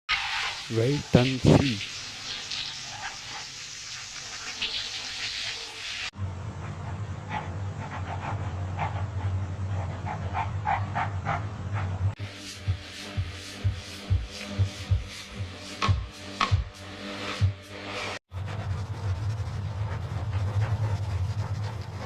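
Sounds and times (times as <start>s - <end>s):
steady low hum: 6.2s - 16.1s.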